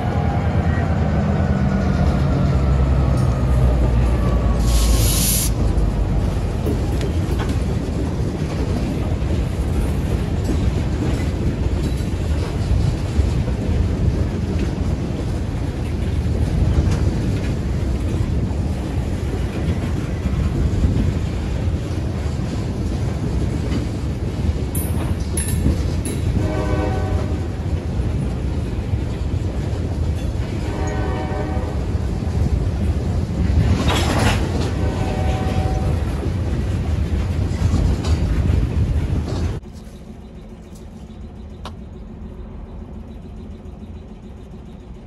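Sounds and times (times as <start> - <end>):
freight train rumble: 0.0 - 45.0
train horn blast: 26.3 - 27.6, 30.6 - 31.9, 34.6 - 36.1.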